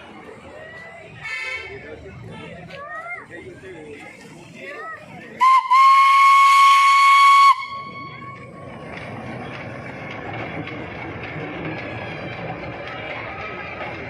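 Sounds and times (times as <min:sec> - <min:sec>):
train rumbling on track: 0:00.0 - 0:14.0
train whistle: 0:05.4 - 0:08.4.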